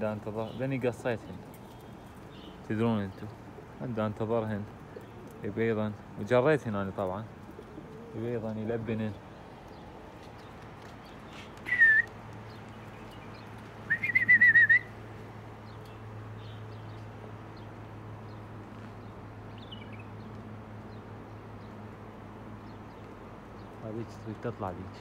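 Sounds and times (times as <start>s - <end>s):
person whistling: 11.7s - 12.1s.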